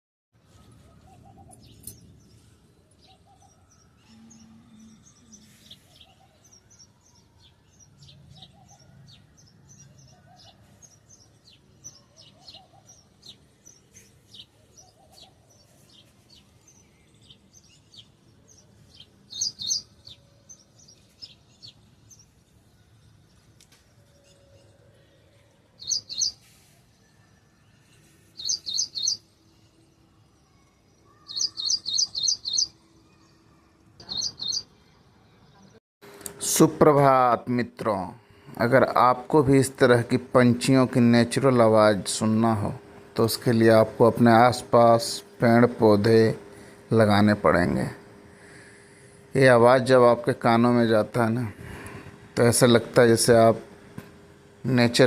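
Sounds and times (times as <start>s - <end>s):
birds chirping: 0.4s - 55.0s
lower bird call: 3.0s - 22.2s.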